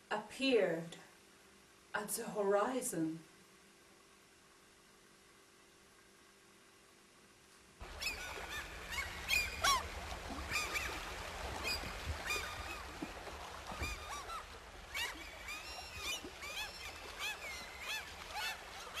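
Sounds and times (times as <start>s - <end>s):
low steady rumble: 0.0s - 19.0s
group of birds calling: 7.9s - 13.1s, 13.7s - 19.0s.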